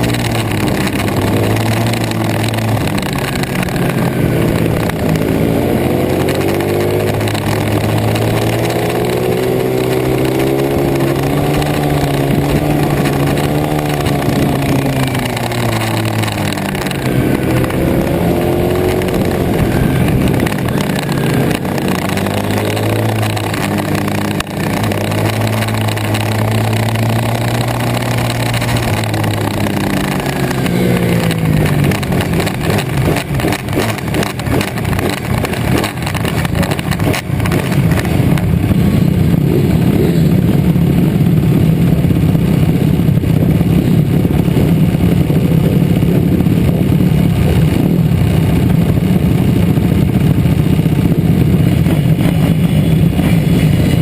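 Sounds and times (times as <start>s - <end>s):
pit bike engine revving: 0.0s - 54.0s.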